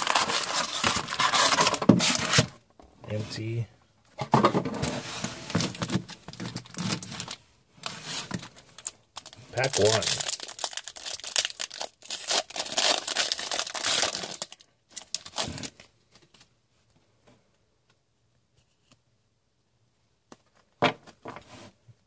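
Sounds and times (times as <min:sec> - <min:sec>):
wrapper tearing and crinkling: 0:00.0 - 0:02.5, 0:05.5 - 0:07.4, 0:08.3 - 0:15.9.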